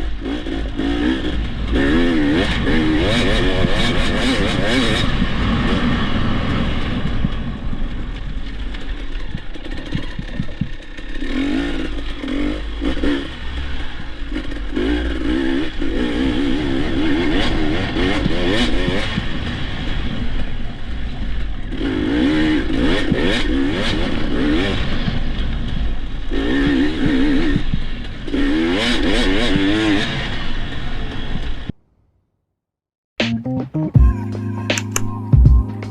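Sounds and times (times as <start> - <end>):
dirt bike engine revving: 0.0 - 31.7.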